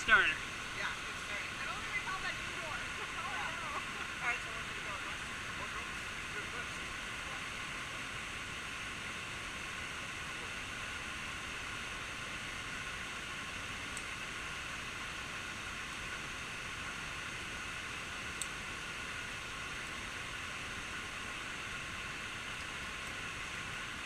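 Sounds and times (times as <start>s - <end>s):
faint ticks: 13.9s - 14.1s, 18.4s - 18.6s.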